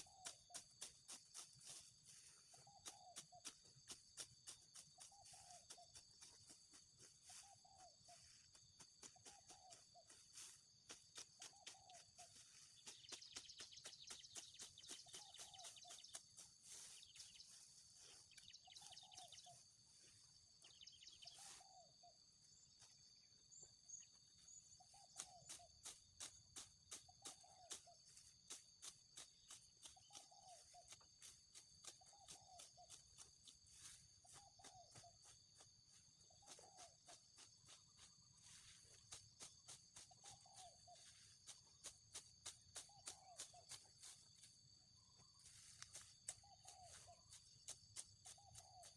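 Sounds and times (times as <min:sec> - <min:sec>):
sickle cutting grass: 0:09.1 - 0:20.2.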